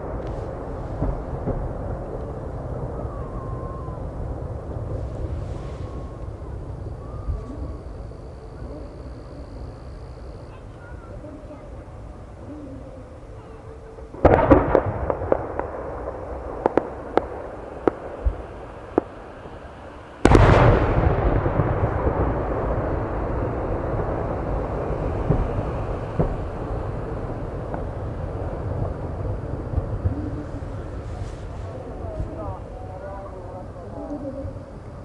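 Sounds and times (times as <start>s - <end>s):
loud rumbling firework boom: 0.0s - 10.5s, 14.1s - 35.0s
firework crackling: 0.0s - 35.0s
firework shells bursting: 14.2s - 22.2s.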